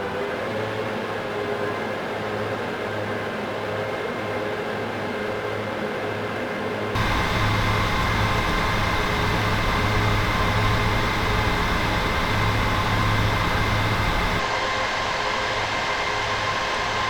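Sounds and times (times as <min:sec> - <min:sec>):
steady hum: 0:07.0 - 0:14.4
thin whine: 0:07.0 - 0:14.4
cooling fans whooshing: 0:07.0 - 0:14.5.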